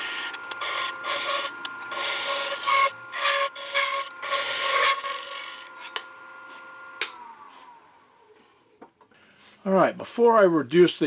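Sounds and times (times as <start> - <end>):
turning tool scraping wood: 0.0 - 6.0
wood lathe whine: 0.0 - 8.4.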